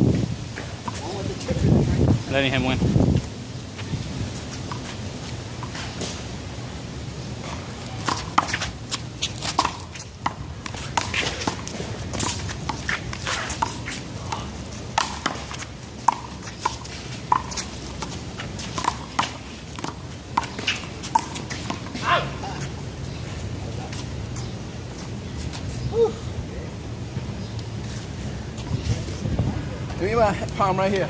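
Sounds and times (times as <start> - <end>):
footsteps scuffing: 8.1 - 10.1.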